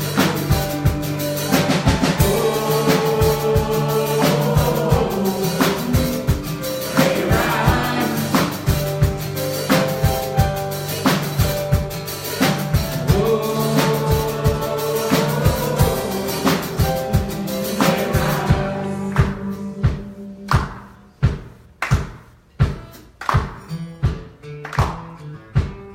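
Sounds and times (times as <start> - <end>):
drum hits: 0.0 - 24.9
gospel band playing: 0.0 - 25.9
person singing: 2.1 - 9.0, 13.0 - 20.9.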